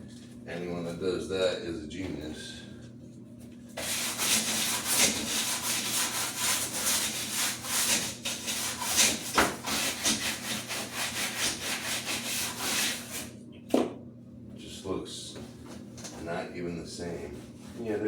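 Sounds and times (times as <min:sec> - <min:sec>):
brush scrubbing with soapy water: 0:03.8 - 0:13.3.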